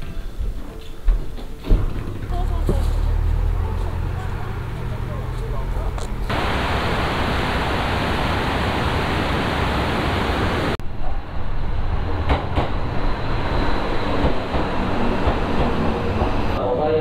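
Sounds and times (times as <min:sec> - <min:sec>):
train running: 0:00.0 - 0:16.7
steady rushing noise: 0:04.8 - 0:16.6.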